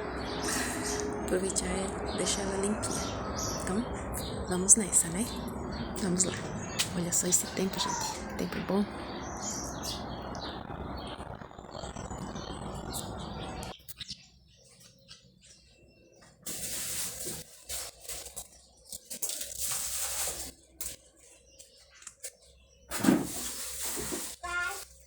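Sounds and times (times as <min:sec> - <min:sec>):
birds chirping: 0:00.0 - 0:25.0
steady rain falling: 0:08.7 - 0:13.7.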